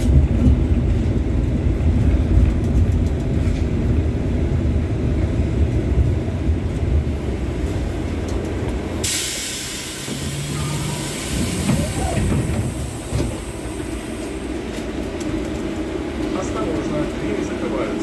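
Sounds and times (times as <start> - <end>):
tram rumbling: 0.0 - 18.0
loud hiss of released air: 9.0 - 14.2.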